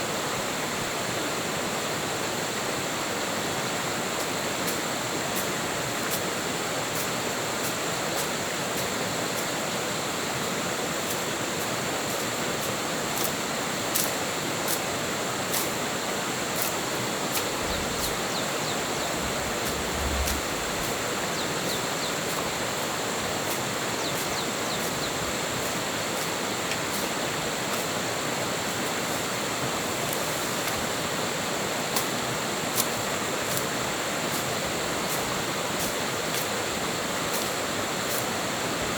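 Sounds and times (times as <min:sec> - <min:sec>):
stream water rushing: 0:00.2 - 0:38.9
faint high ticks: 0:13.9 - 0:14.8, 0:16.6 - 0:21.0
brief low rumble: 0:17.6 - 0:21.4.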